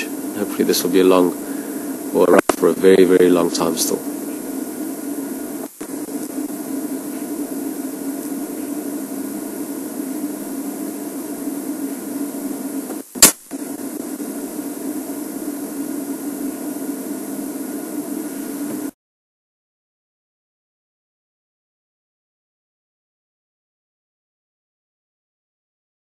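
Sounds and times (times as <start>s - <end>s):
noisy background hum: 0.0s - 19.0s
sharp loud click: 12.9s - 13.6s.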